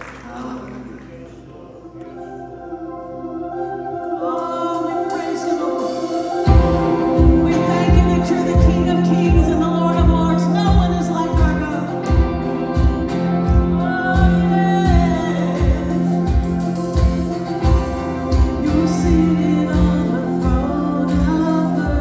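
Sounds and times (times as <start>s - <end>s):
voices singing gospel: 0.0s - 22.0s
band with low beat: 5.2s - 22.0s.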